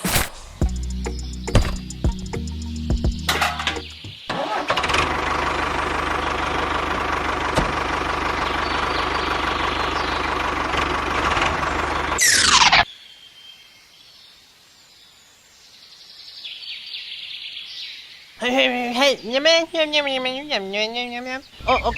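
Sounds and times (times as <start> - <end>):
fine rapid rumble: 4.8 - 12.7
motor running: 4.8 - 12.8.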